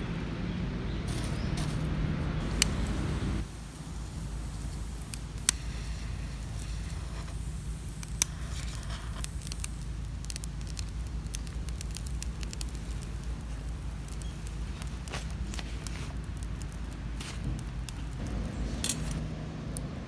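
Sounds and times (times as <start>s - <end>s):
low steady rumble: 0.0s - 20.0s
campfire crackling and popping: 1.3s - 20.0s.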